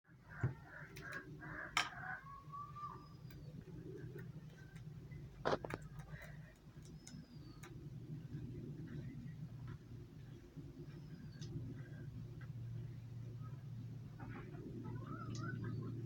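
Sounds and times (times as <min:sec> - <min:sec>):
steady low hum: 0:00.1 - 0:16.0
bird-like calls and whistles: 0:00.2 - 0:04.8, 0:06.2 - 0:07.7, 0:10.8 - 0:12.0, 0:14.2 - 0:16.0.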